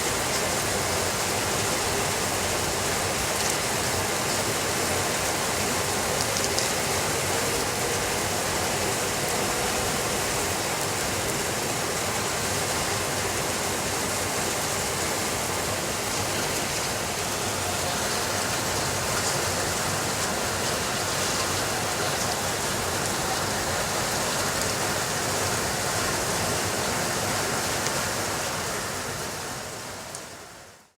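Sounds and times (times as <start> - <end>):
steady rainfall: 0.0 - 31.0.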